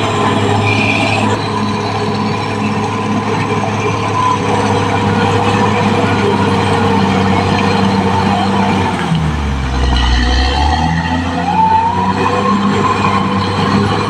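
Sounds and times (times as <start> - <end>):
steel tracks rattling: 0.0 - 11.4
dozer diesel engine running: 0.0 - 14.0.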